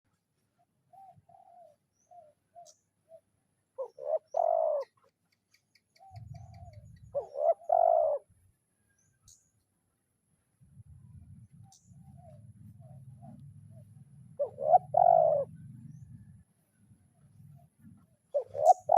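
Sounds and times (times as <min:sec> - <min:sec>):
dove cooing: 0:00.6 - 0:05.1, 0:06.0 - 0:08.3, 0:11.2 - 0:16.4, 0:17.2 - 0:18.9.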